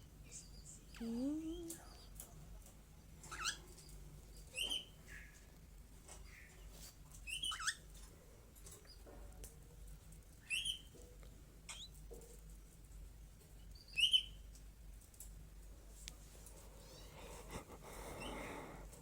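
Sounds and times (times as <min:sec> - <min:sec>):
pet bird squeaky calls: 0:03.3 - 0:03.6, 0:07.3 - 0:07.8, 0:10.4 - 0:10.9, 0:11.7 - 0:12.0, 0:13.9 - 0:14.4.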